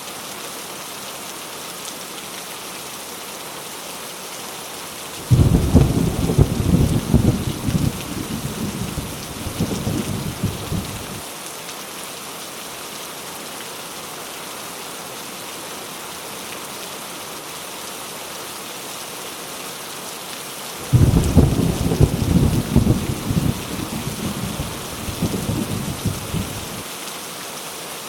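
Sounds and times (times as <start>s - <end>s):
heavy rain falling: 0.0s - 28.0s
thunder rumbling: 5.3s - 11.2s, 20.8s - 26.8s.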